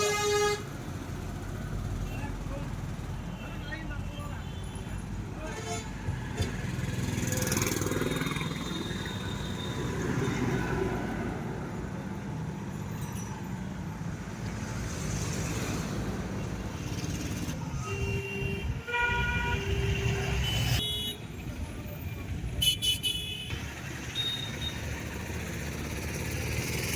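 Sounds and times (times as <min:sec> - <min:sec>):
horn honking: 0:00.0 - 0:00.7, 0:17.8 - 0:21.3, 0:22.6 - 0:23.6.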